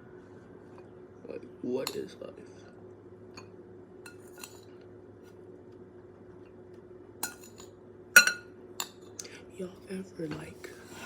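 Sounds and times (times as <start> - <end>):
faint steady hum: 0.0 - 11.0
utensil clinking on a dish: 1.8 - 2.2, 4.1 - 4.8, 7.2 - 9.1.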